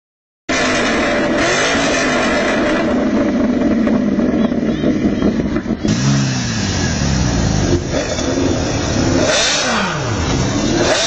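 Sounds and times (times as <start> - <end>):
supercar engine revving: 0.5 - 11.0.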